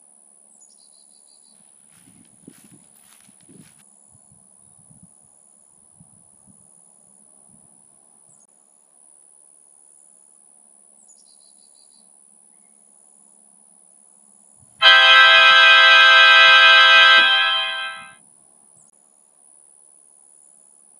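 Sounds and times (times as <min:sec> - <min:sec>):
loud multi-pitched buzzing tone: 0:14.8 - 0:18.1
thin high whine: 0:14.8 - 0:18.1.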